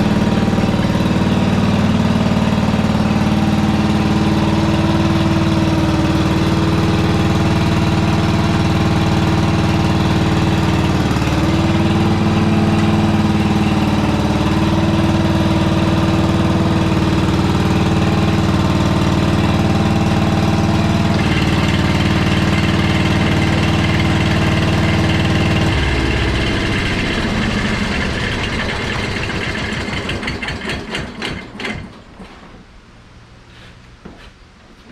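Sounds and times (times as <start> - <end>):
garden tractor engine running: 0.0 - 32.0.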